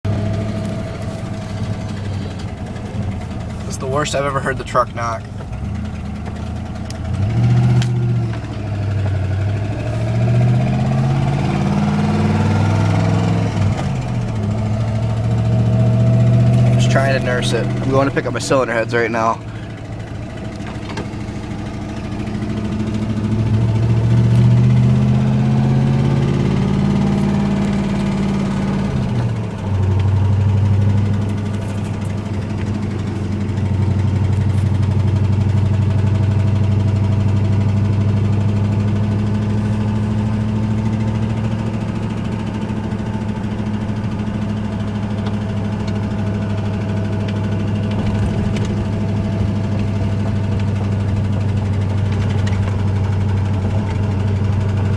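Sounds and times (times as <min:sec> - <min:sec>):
engine running: 0:00.0 - 0:54.9
engine rod knock: 0:05.2 - 0:09.3, 0:44.9 - 0:54.9.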